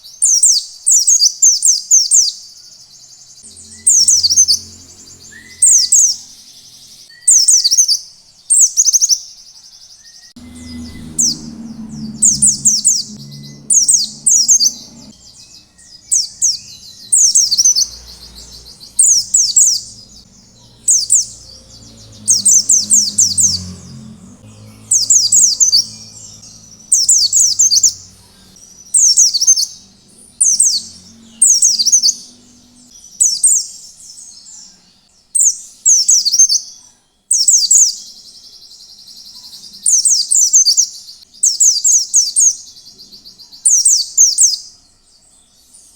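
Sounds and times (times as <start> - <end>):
buzzy bird trill: 0.2 - 9.4, 10.2 - 34.7
bird twittering: 3.4 - 9.2, 10.0 - 33.9.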